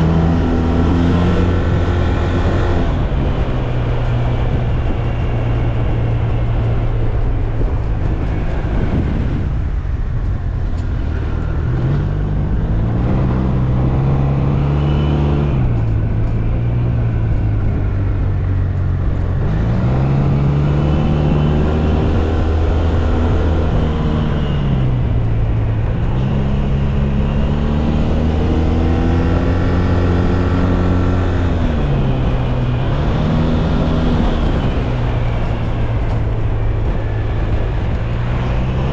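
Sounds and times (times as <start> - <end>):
scooter engine accelerating: 0.0 - 38.9
wind and road noise: 0.0 - 38.9.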